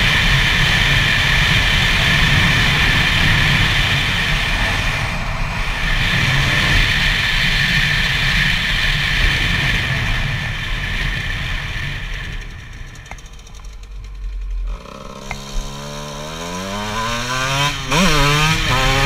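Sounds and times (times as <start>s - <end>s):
motorcycle two-stroke engine running: 0.0s - 19.0s.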